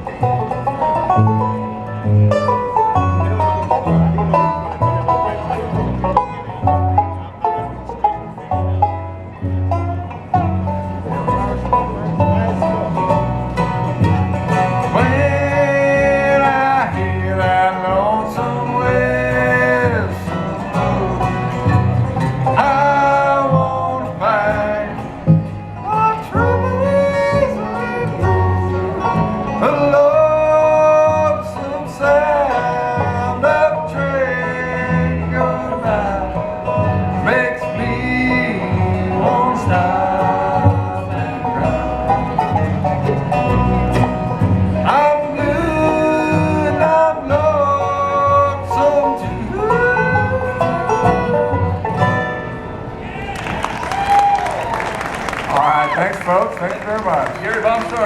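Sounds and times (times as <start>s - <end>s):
bluegrass band playing: 0.0s - 58.0s
person singing: 44.9s - 51.7s.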